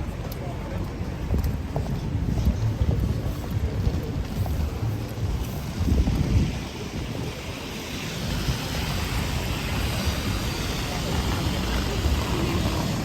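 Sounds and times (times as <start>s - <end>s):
traffic on wet street: 0.0s - 13.0s
wind rumbling on microphone: 0.0s - 13.0s
rain hissing: 4.7s - 13.0s.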